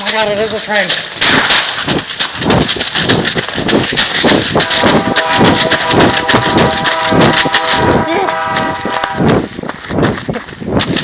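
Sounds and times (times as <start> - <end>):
rhythmic crunching of train: 0.0 - 11.0
train rushing in tunnel: 4.4 - 9.6
multi-tone train horn: 4.6 - 9.4.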